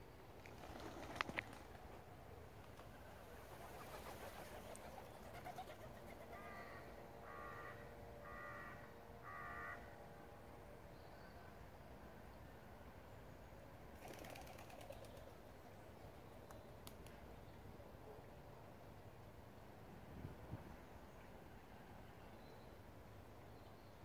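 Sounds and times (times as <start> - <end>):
bird calling: 4.0 - 9.9.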